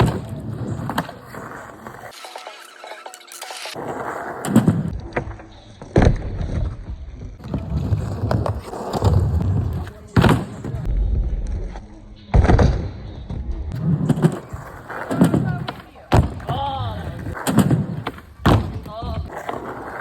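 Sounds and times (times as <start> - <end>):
skateboard impacts: 0.0 - 2.2, 3.7 - 6.8, 7.4 - 10.9, 13.7 - 20.0
skateboard wheels rolling on ramp: 0.0 - 2.2, 3.8 - 10.9, 13.7 - 20.0.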